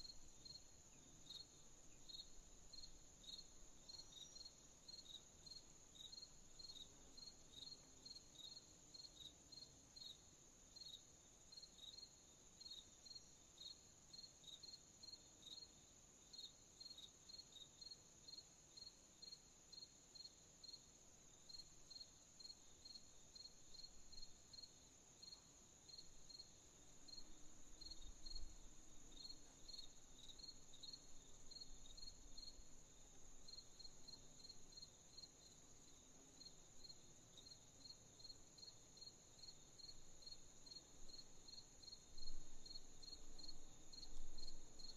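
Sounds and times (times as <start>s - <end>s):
crickets chirping: 0.0s - 44.9s.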